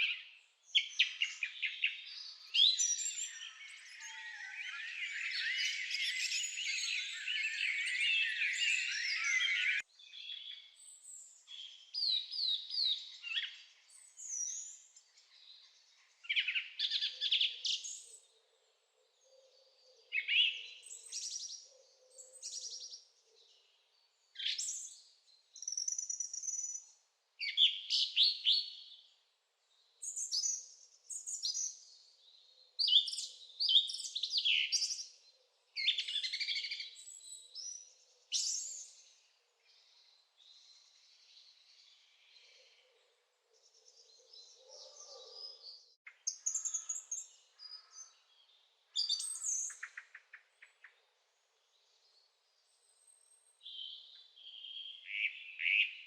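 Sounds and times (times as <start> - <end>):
songbird warbling: 2.6 - 9.8.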